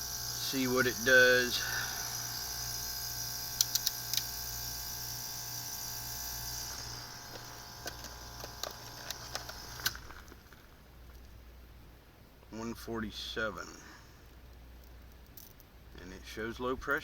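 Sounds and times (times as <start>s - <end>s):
steady whining tones: 0.0s - 10.6s
heat pump humming: 0.0s - 11.0s
sharp clicks: 3.5s - 4.3s, 7.3s - 11.2s.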